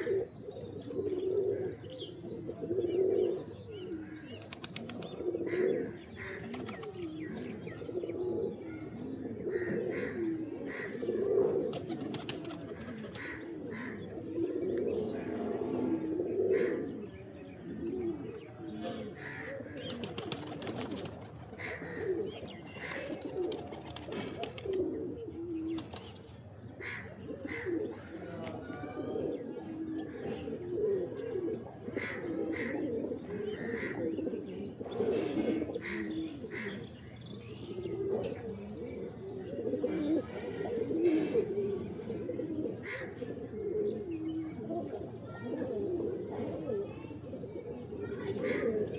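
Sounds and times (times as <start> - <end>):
pigeons cooing: 0.0 - 48.9.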